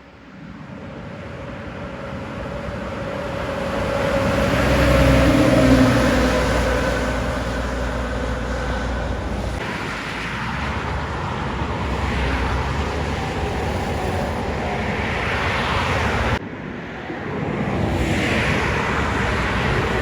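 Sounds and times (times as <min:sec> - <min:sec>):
heavy trucks driving past: 0:00.7 - 0:16.4.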